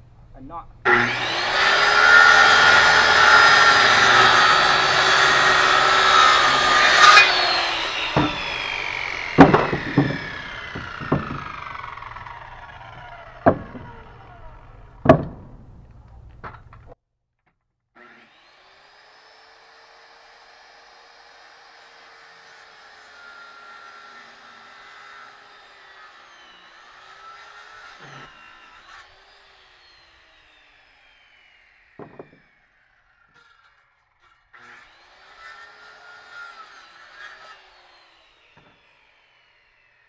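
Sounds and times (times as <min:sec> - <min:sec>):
circular saw cutting wood: 0:00.3 - 0:17.0, 0:18.0 - 0:40.0
motor running: 0:00.8 - 0:16.9
wood knocking and clattering: 0:01.1 - 0:17.0, 0:32.0 - 0:32.4.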